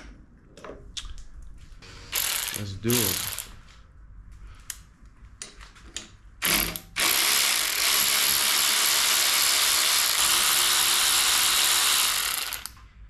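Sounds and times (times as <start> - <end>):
cordless power tool running: 7.0 - 12.7.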